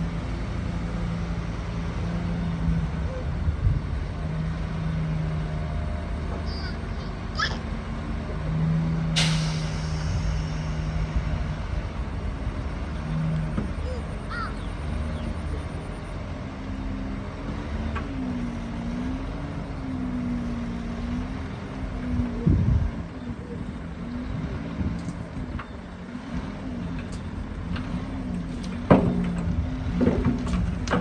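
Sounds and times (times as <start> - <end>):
heavy diesel engine running: 0.0 - 31.0
sharp air hiss: 9.2 - 11.7.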